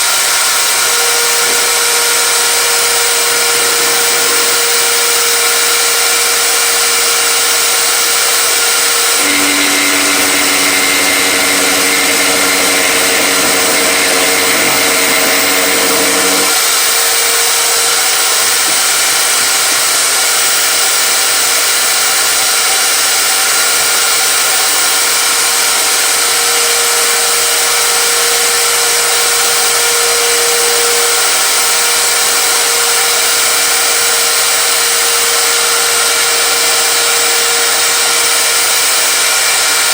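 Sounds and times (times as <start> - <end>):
power tool motor whining: 0.0 - 39.9
lower motor hum: 0.8 - 6.2, 9.1 - 18.8.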